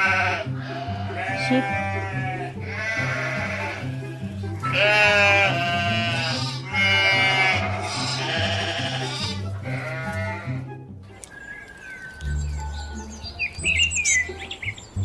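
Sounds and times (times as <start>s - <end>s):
sheep bleating: 0.0s - 10.7s
background music with steady beat: 0.0s - 15.0s.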